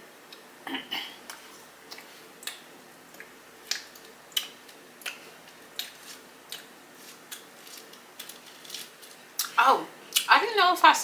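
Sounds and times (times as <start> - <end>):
wet chewing clicks and smacks: 1.3 - 5.2.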